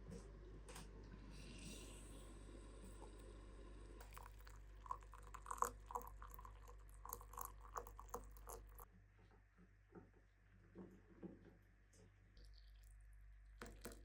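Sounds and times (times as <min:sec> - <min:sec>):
low steady hum: 0:00.0 - 0:11.2.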